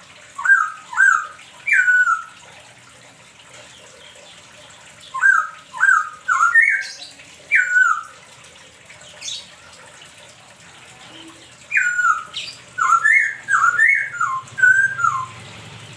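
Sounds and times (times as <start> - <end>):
songbird whistled notes: 11.7 - 15.4.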